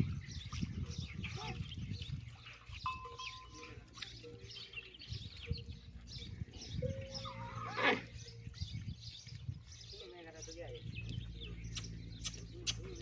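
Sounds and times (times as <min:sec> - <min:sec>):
small birds chirping: 0:00.0 - 0:13.0
bird crying: 0:06.8 - 0:08.2.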